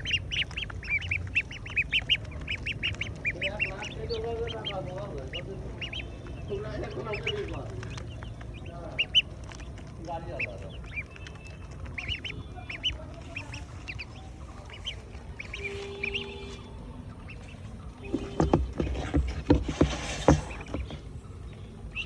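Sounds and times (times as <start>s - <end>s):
duck-like calls: 0.0s - 9.7s, 10.3s - 16.6s
poultry peeping: 0.0s - 22.0s
knocks: 18.1s - 21.0s.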